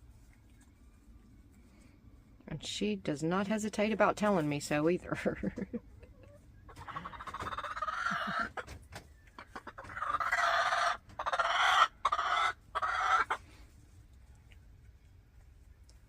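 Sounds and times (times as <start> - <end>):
hen complaining calls: 6.2 - 8.6, 9.4 - 13.4.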